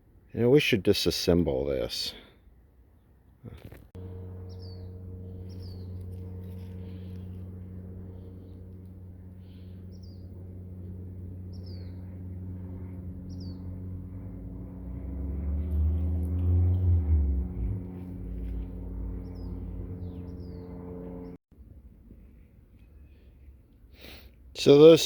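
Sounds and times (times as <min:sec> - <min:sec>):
electrical hum: 0:04.0 - 0:21.4
low rumble: 0:04.0 - 0:21.4
bird chirping: 0:04.4 - 0:06.1, 0:11.4 - 0:12.1, 0:13.2 - 0:13.8, 0:18.8 - 0:21.3.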